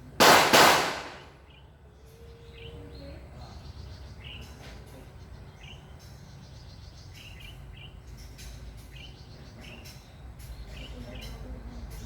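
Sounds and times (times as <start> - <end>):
bird chirping: 1.3 - 12.0.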